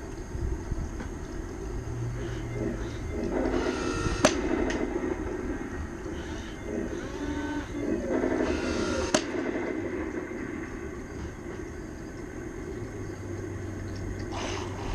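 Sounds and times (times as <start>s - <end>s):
small electric motor whining: 2.2s - 4.4s.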